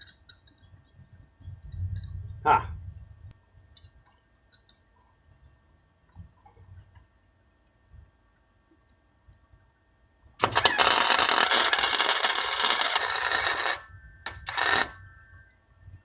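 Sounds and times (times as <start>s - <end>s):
welding arc buzzing: 10.4s - 15.1s.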